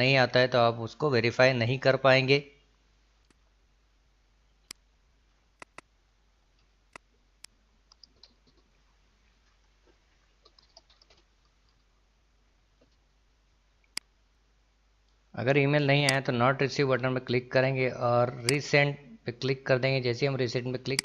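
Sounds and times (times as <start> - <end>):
computer mouse clicking: 5.6 - 5.9, 6.9 - 8.7, 10.4 - 11.8.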